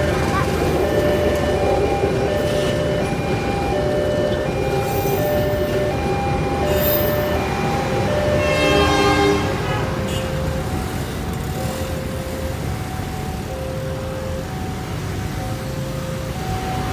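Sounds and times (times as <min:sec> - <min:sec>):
level crossing two-tone alarm: 0:00.0 - 0:16.9
train rumbling past: 0:00.0 - 0:16.9
train horn blast: 0:08.2 - 0:10.6.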